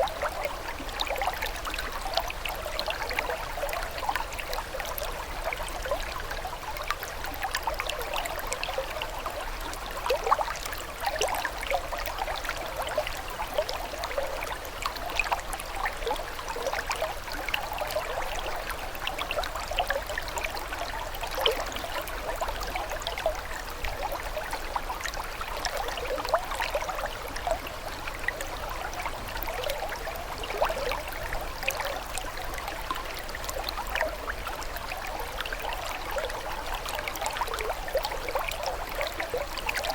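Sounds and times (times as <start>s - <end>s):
water babbling: 0.0s - 39.9s.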